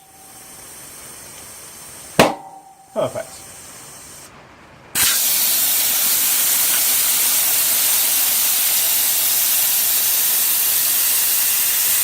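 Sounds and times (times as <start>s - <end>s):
air hissing from valve stem: 0.0s - 2.2s, 2.8s - 4.3s, 5.0s - 12.0s.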